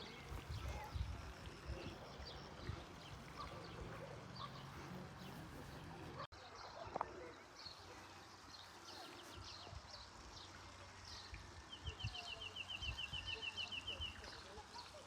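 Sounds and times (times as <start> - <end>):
birds chirping: 0.0 - 6.3.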